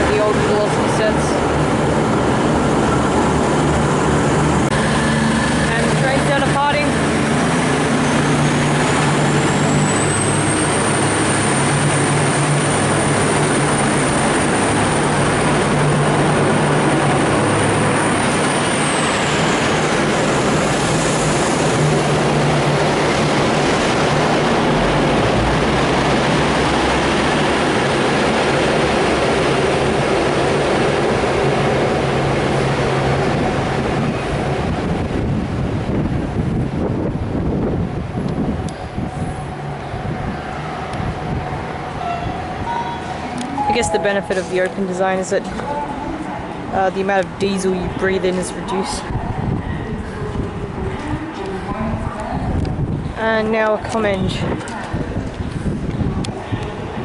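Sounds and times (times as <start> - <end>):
diesel engines under load: 0.0 - 57.0
high whine: 37.5 - 46.7.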